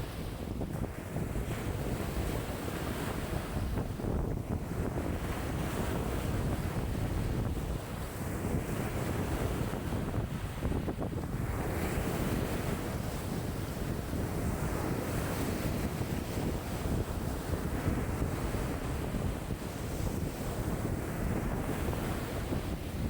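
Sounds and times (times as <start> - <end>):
waves breaking on shore: 0.0 - 23.0
wind rumbling on microphone: 0.0 - 23.0.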